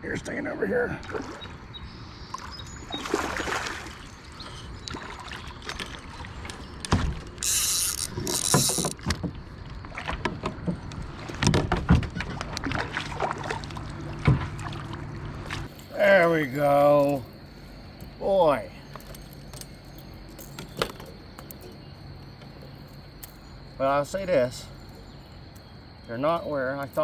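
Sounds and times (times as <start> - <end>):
water splashing: 2.4 - 15.8
knocks against a kayak: 10.0 - 12.7.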